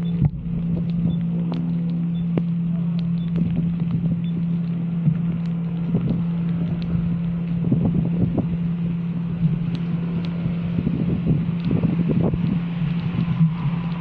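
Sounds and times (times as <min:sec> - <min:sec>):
small crackles: 0:00.0 - 0:14.0
wind rush on microphone: 0:03.4 - 0:14.0.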